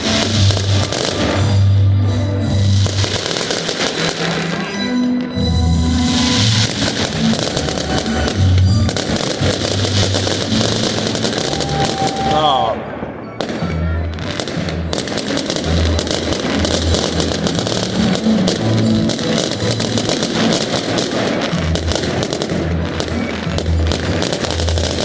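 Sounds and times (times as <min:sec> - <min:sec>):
fireworks banging and crackling: 0:00.0 - 0:25.0
music with deep pulsing bass: 0:04.8 - 0:11.8.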